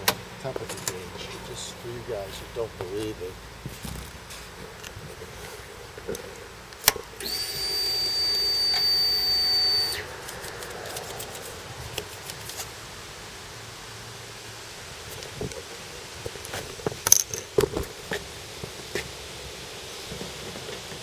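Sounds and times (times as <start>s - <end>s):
fuel pump whine: 4.8s - 21.0s.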